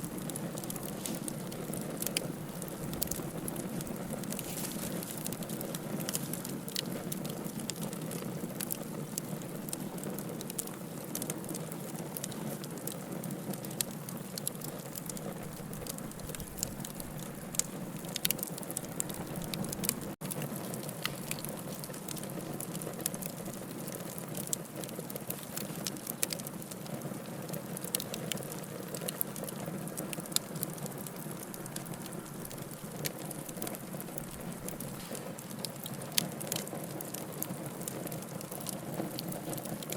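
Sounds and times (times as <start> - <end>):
logs crackling and popping: 0.0 - 39.9
hiss of flame: 0.1 - 6.6, 34.6 - 35.9.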